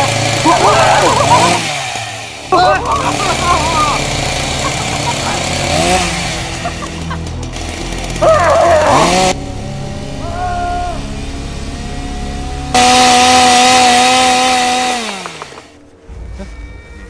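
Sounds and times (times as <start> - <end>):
chainsaw revving: 0.0 - 9.5, 12.0 - 15.8.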